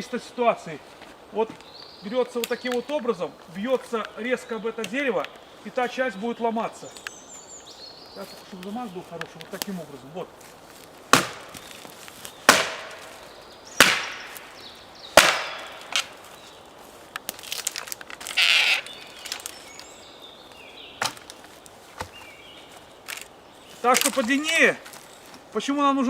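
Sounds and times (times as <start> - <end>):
rustle: 0.0 - 26.0
wooden pole cracking against tree: 1.4 - 4.2, 8.5 - 25.5.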